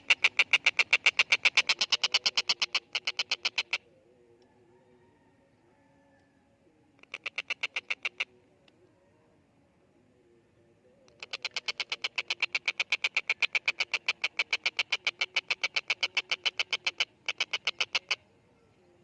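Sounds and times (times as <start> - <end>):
kingfisher rapid chattering call: 0.0 - 3.8, 7.0 - 8.3, 11.2 - 18.2.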